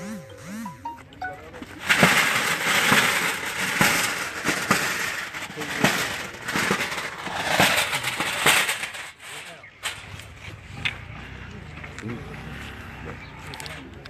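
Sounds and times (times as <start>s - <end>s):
gritty crunching and scraping: 1.4s - 14.0s
hand tool striking hard ground: 1.5s - 9.1s.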